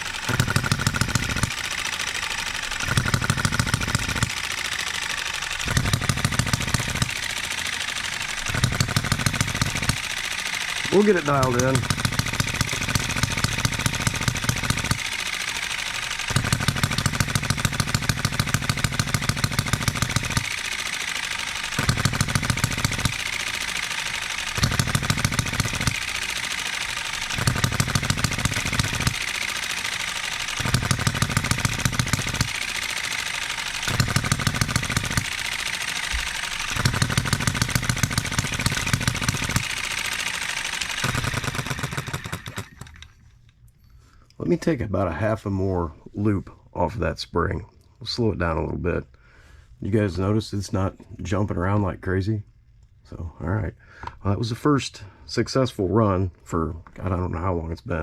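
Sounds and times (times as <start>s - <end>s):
model engine firing: 0.0s - 43.5s
light mechanical clatter: 0.0s - 44.7s.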